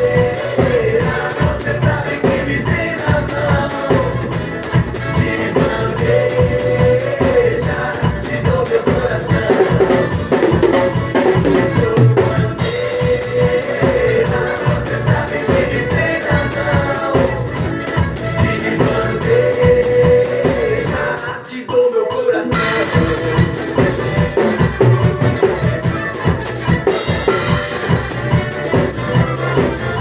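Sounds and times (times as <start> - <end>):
drum kit playing: 0.0 - 21.5, 22.5 - 30.0
recorded song with singing: 0.0 - 30.0.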